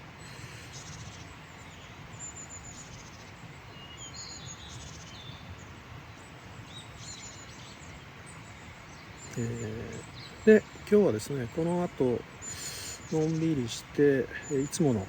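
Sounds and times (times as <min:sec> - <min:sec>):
birds chirping: 0:00.0 - 0:15.0
outdoor background hiss: 0:00.0 - 0:15.0.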